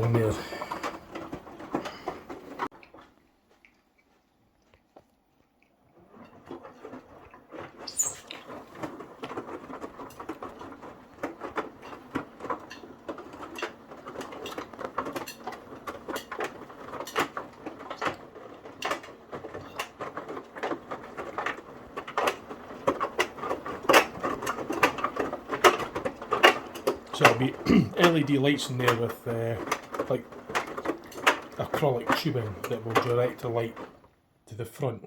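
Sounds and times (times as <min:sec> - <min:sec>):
washing machine sloshing and tumbling: 0:00.0 - 0:02.8, 0:05.9 - 0:34.4
sharp clicks and knocks: 0:06.1 - 0:34.2.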